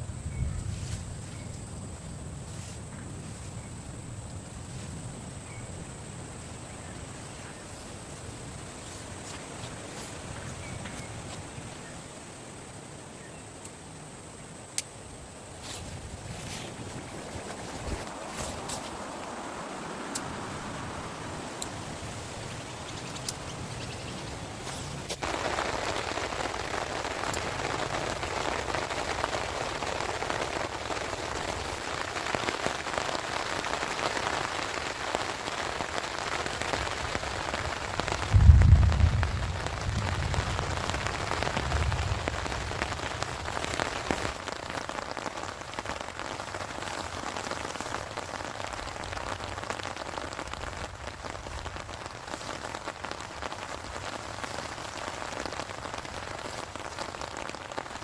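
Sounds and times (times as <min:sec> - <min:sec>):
heavy rain falling: 0:15.9 - 0:58.0
loud low rumble: 0:38.3 - 0:42.2.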